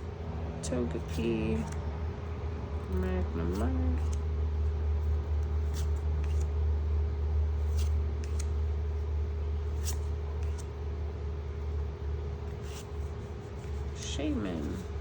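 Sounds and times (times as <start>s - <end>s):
steady low hum: 0.0s - 15.0s
trading cards clicking and rustling: 2.9s - 4.3s, 5.4s - 6.5s, 7.6s - 8.5s, 9.7s - 10.8s.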